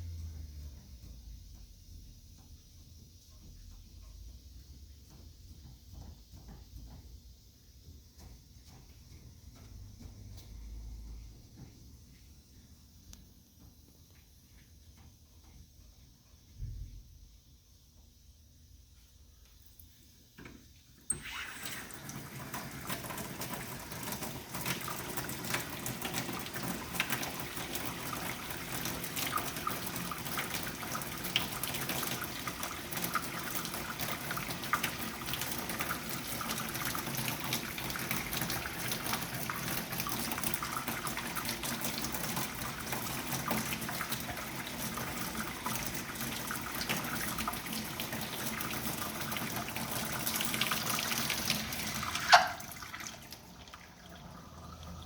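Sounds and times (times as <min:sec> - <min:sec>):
water running from tap: 0:21.1 - 0:55.0.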